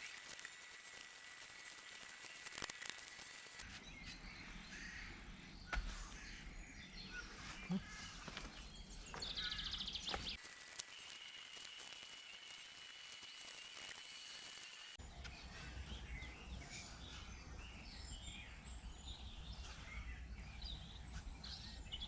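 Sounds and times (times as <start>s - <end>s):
rapid high bird trill: 0.0s - 3.6s, 10.4s - 15.0s.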